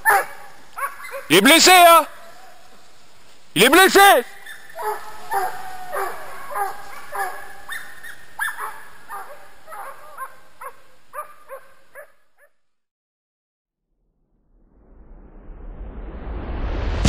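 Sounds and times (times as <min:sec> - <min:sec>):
hunting dogs barking and baying: 0:00.0 - 0:12.6.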